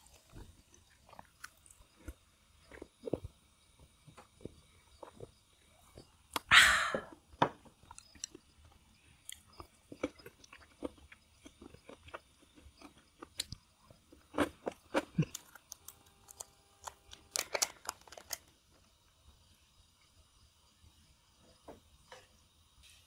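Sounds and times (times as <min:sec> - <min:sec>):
crunching and chewing: 0:00.0 - 0:06.5, 0:07.1 - 0:18.8
clicks and crackles: 0:09.3 - 0:18.8.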